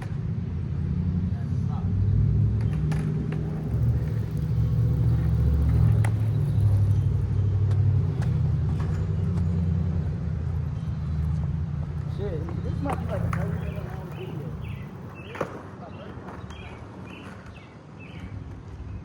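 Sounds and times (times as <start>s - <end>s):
skateboard wheels rolling on pavement: 0.0s - 19.0s.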